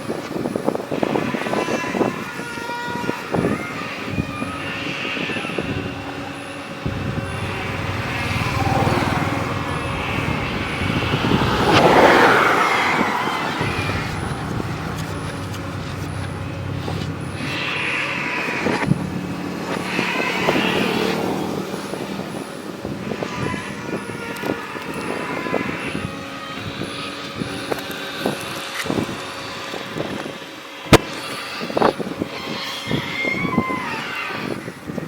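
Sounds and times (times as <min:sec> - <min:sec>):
excavator hydraulic whine: 0:00.0 - 0:29.3
rushing burst: 0:06.8 - 0:19.0.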